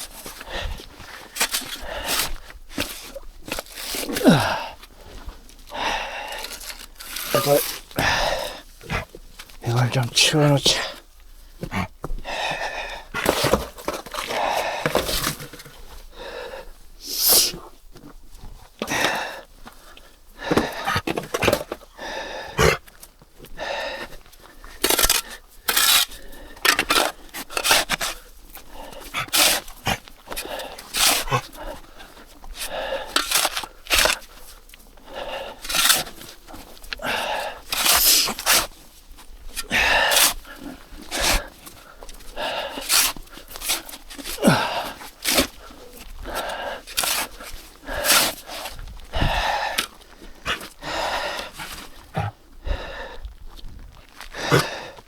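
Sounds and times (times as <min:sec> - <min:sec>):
shovel scraping snow: 0:06.4 - 0:08.4, 0:24.9 - 0:28.2, 0:30.6 - 0:31.5, 0:37.7 - 0:38.8, 0:42.6 - 0:46.0, 0:46.8 - 0:48.8.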